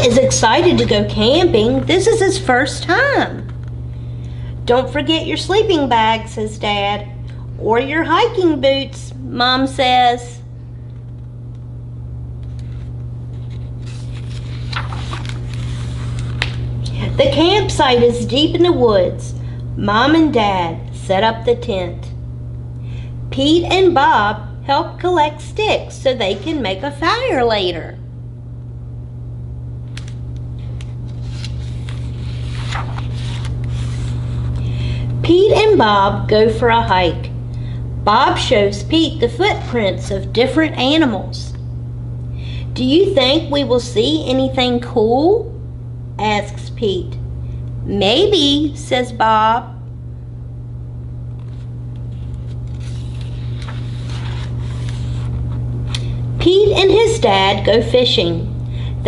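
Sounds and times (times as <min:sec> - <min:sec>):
low hum: 0:00.0 - 0:59.0
paper pages rustling: 0:12.5 - 0:16.6, 0:30.0 - 0:34.6, 0:51.4 - 0:55.6.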